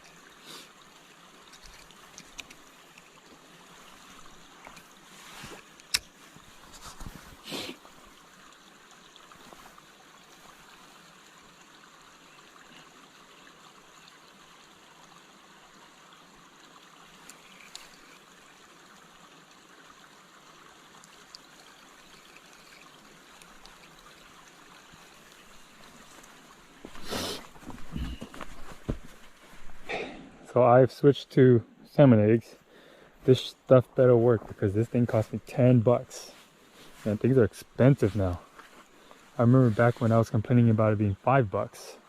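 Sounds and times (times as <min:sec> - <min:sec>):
creek water rushing: 0:00.0 - 0:42.0
faint clicks: 0:21.0 - 0:24.2.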